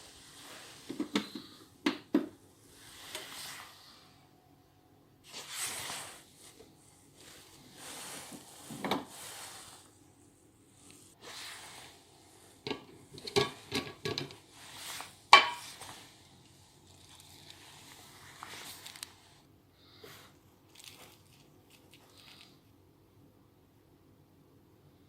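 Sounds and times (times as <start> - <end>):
clicks and knocks of hard objects: 12.7 - 14.4.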